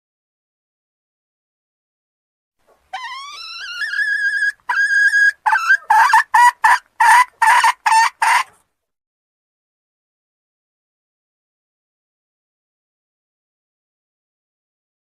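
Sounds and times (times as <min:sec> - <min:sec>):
junglefowl call: 0:02.9 - 0:08.5.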